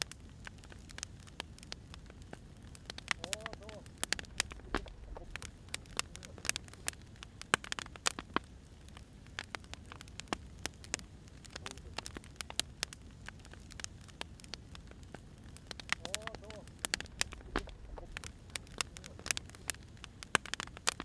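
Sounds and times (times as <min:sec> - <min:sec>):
firewood crackling and popping: 0:00.0 - 0:21.0
low steady rumble: 0:03.8 - 0:07.0, 0:14.8 - 0:20.3.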